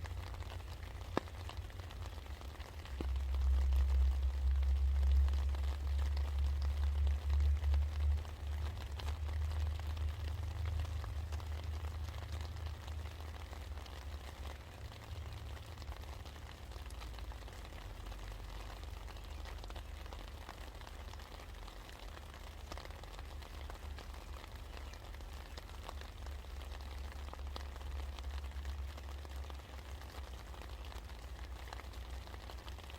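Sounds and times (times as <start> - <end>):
rain pattering: 0.0 - 32.9
low rumble: 2.8 - 13.0.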